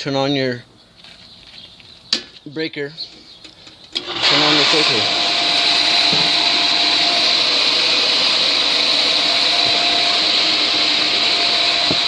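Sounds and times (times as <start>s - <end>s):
pool filter pump hissing: 3.9s - 12.0s.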